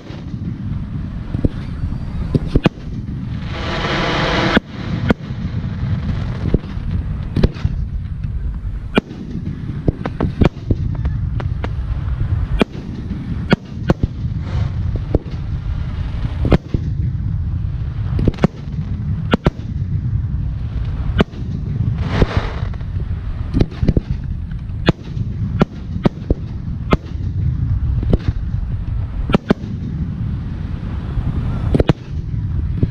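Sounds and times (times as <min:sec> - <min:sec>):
firework shells booming: 0:00.0 - 0:30.8, 0:31.6 - 0:32.9
low rumble: 0:00.0 - 0:32.9
rising hiss: 0:14.1 - 0:16.5, 0:21.9 - 0:23.6.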